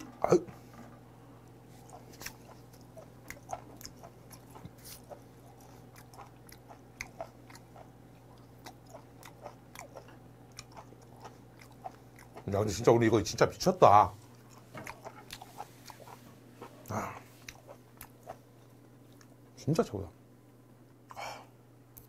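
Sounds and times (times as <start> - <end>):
wet chewing mouth clicks: 1.8 - 12.5, 16.8 - 19.3.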